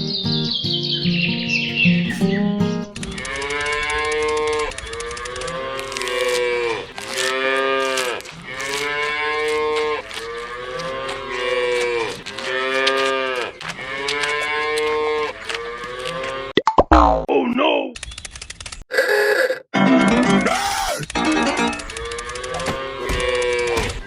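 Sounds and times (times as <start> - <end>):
cattle mooing: 3.1 - 16.5, 21.4 - 24.0.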